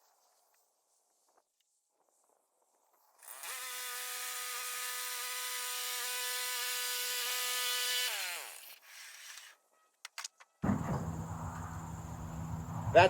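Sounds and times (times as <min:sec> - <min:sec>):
electric saw motor whine: 0:03.2 - 0:09.3, 0:10.6 - 0:13.0.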